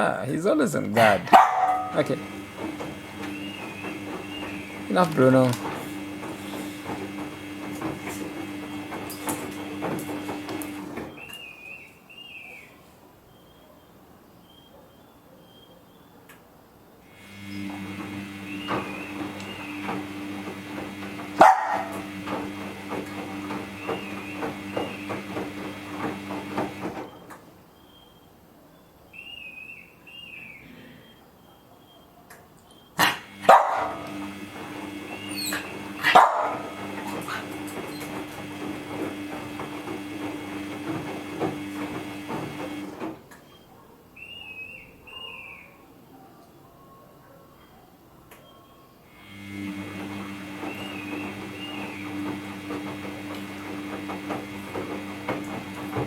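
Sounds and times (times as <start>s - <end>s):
washing machine motor hum: 0.0s - 11.5s, 17.0s - 27.5s, 33.0s - 43.4s, 49.0s - 56.0s.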